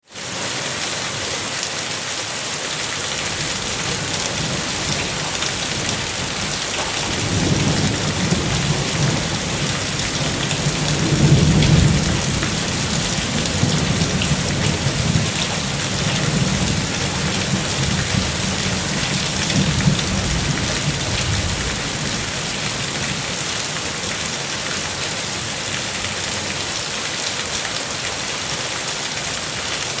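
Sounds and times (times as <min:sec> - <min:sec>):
rain falling on water: 0:00.1 - 0:30.0
distant thunder rolling: 0:03.3 - 0:22.4.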